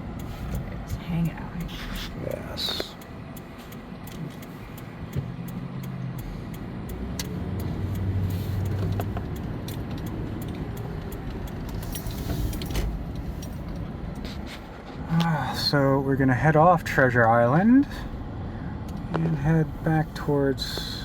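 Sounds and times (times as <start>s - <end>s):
car engine and tyre noise: 0.0s - 21.0s
light clicks and rattles: 0.1s - 15.7s.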